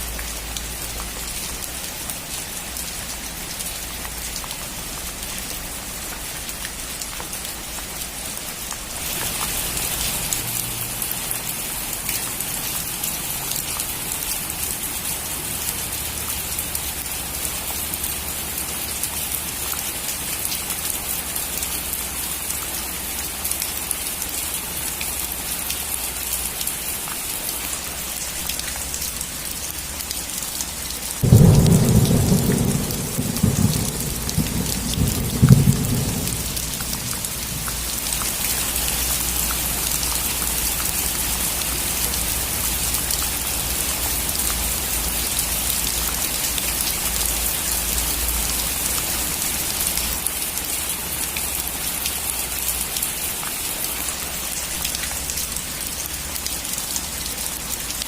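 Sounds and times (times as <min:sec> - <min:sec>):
rain falling on a roof: 0:00.0 - 0:58.0
thunder rumbling: 0:31.2 - 0:38.2.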